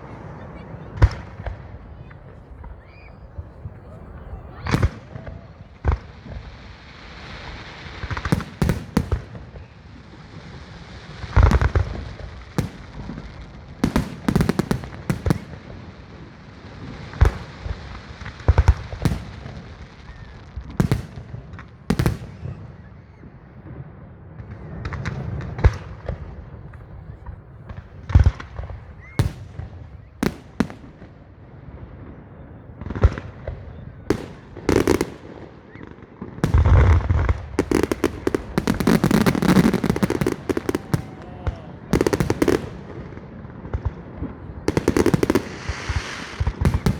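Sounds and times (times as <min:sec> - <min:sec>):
fireworks bursting with bangs: 0:00.0 - 0:46.9
steady hiss: 0:45.0 - 0:46.9.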